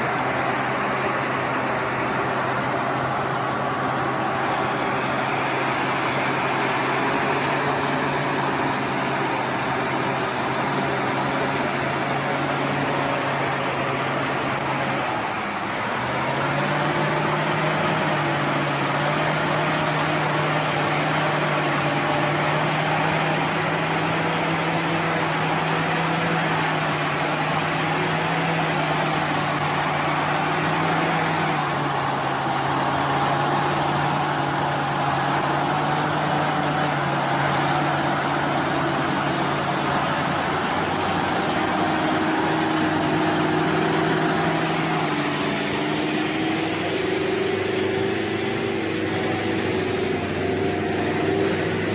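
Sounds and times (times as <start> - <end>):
truck engine running: 0.0 - 51.9.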